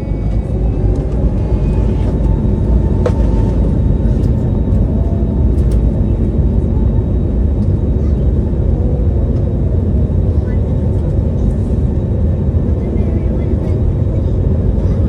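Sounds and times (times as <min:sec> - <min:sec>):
airliner engines rumbling in cabin: 0:00.0 - 0:15.0.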